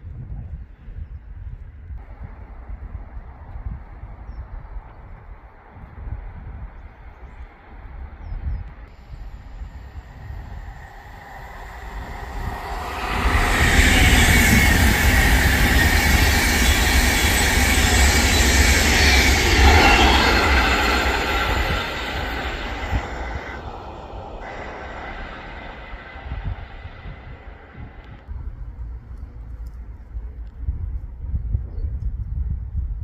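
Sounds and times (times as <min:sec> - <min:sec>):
express train passing at speed: 0:06.0 - 0:30.4.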